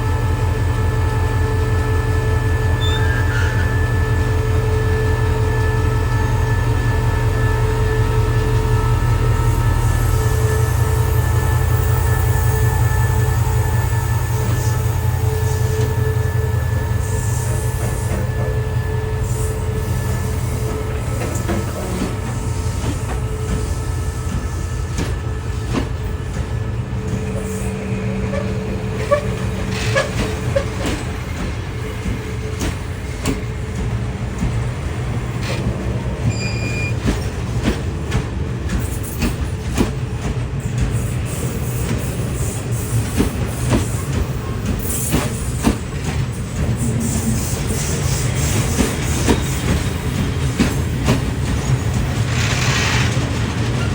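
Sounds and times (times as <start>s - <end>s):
diesel locomotive engine rumble: 0.0s - 53.9s
high wheel squeal: 2.5s - 25.0s, 36.2s - 37.1s
train wheels clicking and knocking: 10.7s - 53.9s.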